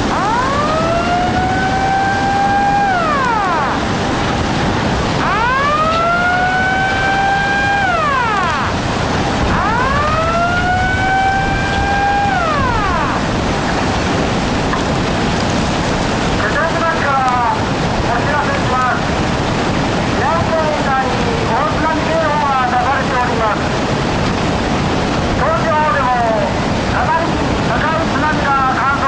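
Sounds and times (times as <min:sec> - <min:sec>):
warning siren wailing: 0:00.0 - 0:14.6
steady rush of noise: 0:00.0 - 0:29.0.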